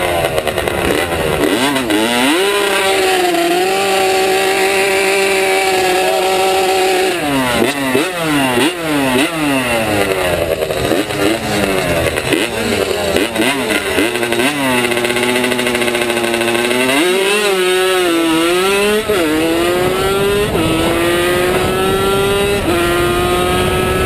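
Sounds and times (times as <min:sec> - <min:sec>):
two-stroke motorcycle engine revving: 0:00.0 - 0:24.0.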